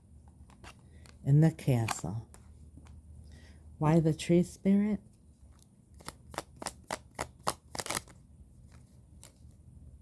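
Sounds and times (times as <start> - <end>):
faint card handling: 5.4 - 9.6
cards being shuffled: 5.5 - 9.6.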